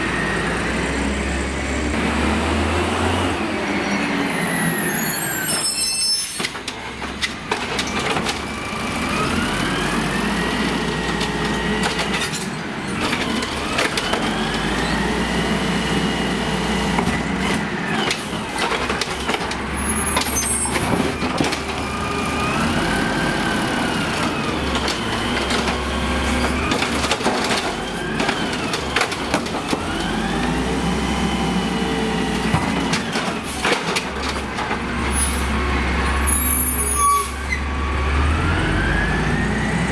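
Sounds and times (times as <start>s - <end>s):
garbage truck engine revving: 0.0s - 5.2s, 7.4s - 39.9s
metal clanks and knocks: 32.5s - 35.0s.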